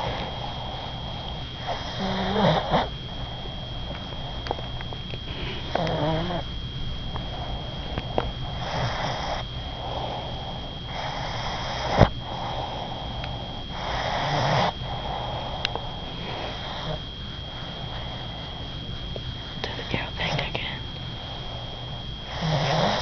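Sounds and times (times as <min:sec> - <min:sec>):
dog snoring: 0:00.0 - 0:04.6, 0:05.2 - 0:06.5, 0:07.3 - 0:18.7, 0:19.4 - 0:23.0.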